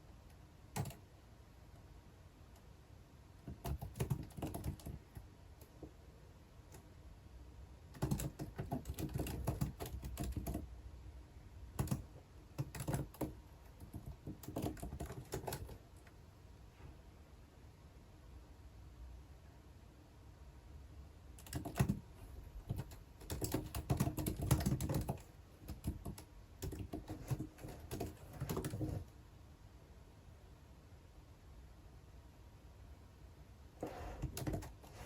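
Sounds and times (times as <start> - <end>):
keyboard typing clicks: 0.7 - 1.0, 3.4 - 5.8, 7.9 - 10.6, 11.8 - 15.8, 21.4 - 29.0, 34.2 - 34.9.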